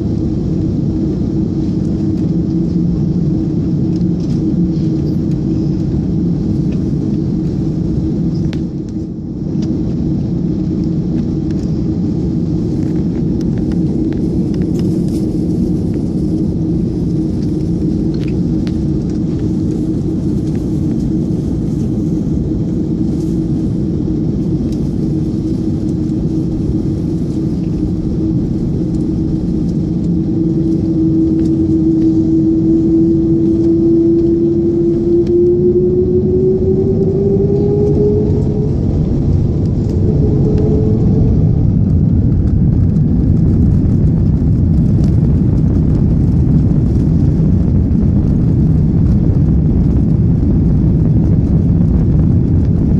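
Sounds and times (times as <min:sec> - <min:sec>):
airliner cabin rumble: 0:00.0 - 0:52.9
engine tone rising in pitch: 0:30.2 - 0:42.5.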